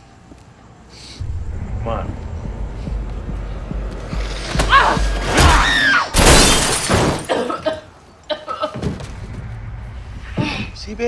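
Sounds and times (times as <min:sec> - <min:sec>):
low rumble: 0:01.2 - 0:05.2
film soundtrack music: 0:01.2 - 0:05.7
loud shattering crash: 0:04.6 - 0:07.5.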